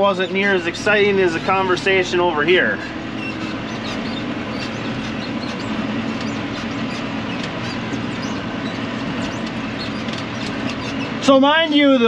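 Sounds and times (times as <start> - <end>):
tractor engine hum: 0.0 - 12.0
machine clicks and rattles: 3.2 - 11.3.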